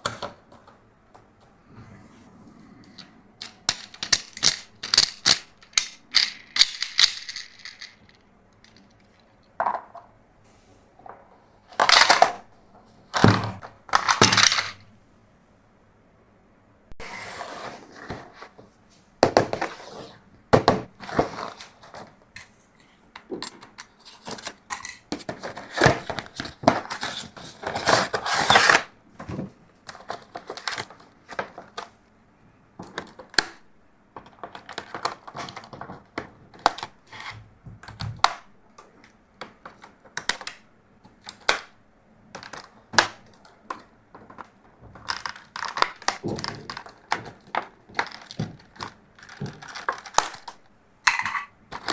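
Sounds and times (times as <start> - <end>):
plastic packaging crinkling: 45.0 - 50.7.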